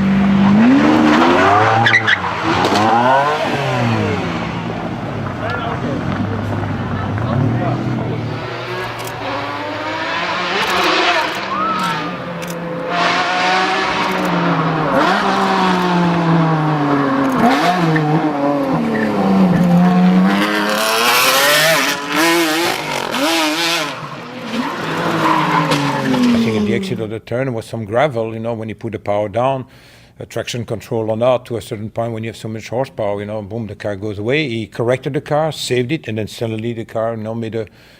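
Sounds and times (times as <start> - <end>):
car engine revving: 0.0 - 27.1
tyres squealing: 0.4 - 4.3, 7.0 - 12.8, 22.7 - 27.0.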